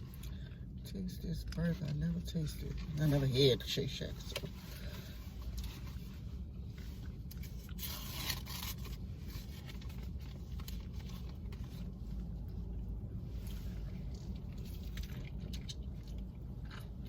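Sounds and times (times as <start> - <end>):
steady low hum: 0.0 - 17.0
paper wrapper rustling and tearing: 7.6 - 11.4.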